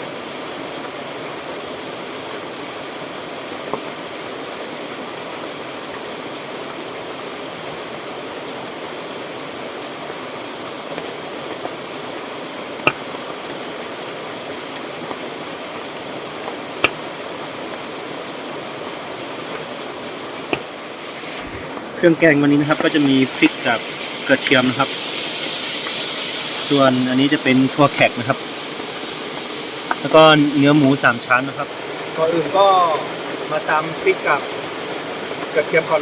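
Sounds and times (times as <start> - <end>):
rushing water: 0.0 - 36.0
sharp clicks or knocks: 20.5 - 20.7.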